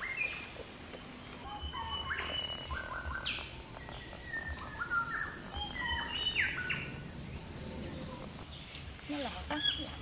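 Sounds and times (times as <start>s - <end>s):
birds whistling: 1.2s - 8.8s
high-pitched hiss: 1.2s - 10.0s.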